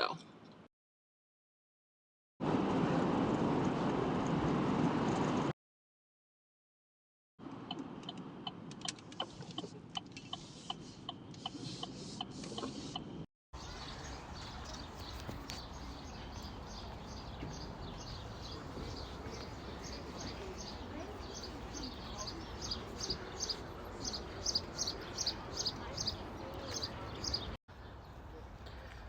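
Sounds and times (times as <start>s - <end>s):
steady background noise: 12.2s - 29.0s
birds chirping: 13.6s - 29.0s.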